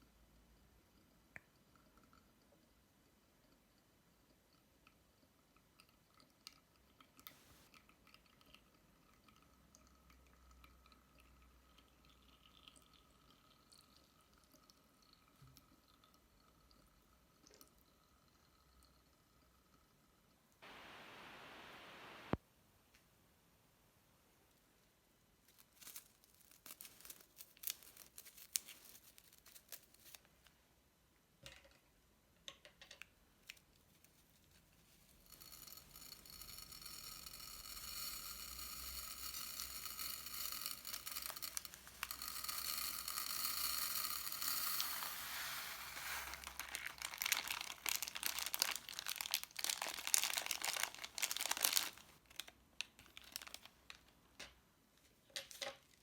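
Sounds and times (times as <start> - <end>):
plastic bags crinkling: 25.5 - 30.2, 44.0 - 54.1.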